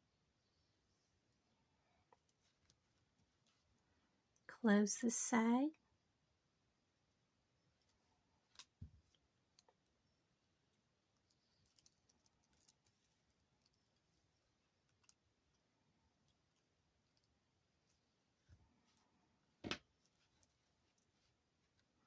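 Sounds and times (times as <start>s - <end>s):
faint clicks of pliers and metal: 2.0s - 4.5s, 7.8s - 22.0s.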